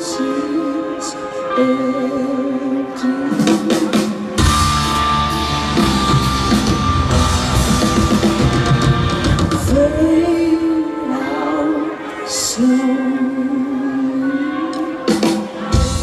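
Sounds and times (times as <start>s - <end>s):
rock band playing live: 3.2s - 10.8s, 14.7s - 16.0s
drum hits: 4.4s - 9.8s.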